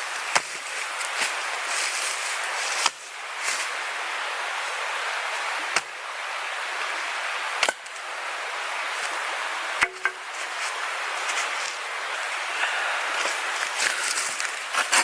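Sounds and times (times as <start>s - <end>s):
steady background hiss: 0.0s - 15.0s
blade chopping into wood: 7.6s - 7.9s.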